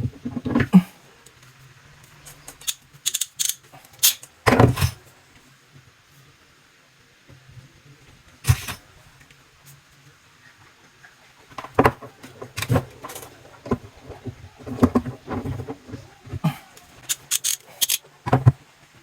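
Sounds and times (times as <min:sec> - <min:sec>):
knocks and clicks of tools: 0:02.5 - 0:05.0, 0:16.8 - 0:18.6.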